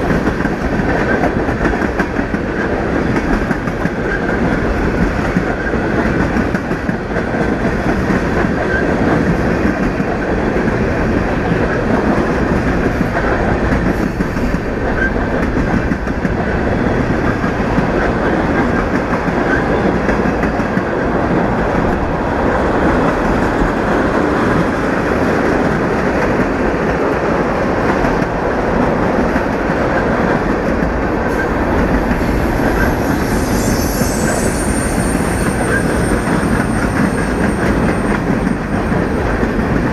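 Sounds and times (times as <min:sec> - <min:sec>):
train wheels rumbling on rail: 0:00.0 - 0:39.9
high wheel squeal: 0:32.2 - 0:38.8.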